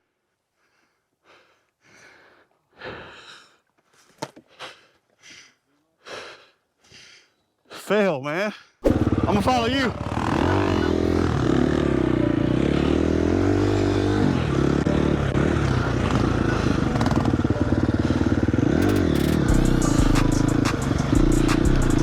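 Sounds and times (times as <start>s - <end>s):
dirt bike engine revving: 8.8s - 22.0s
sharp clicking rattles: 18.8s - 19.5s.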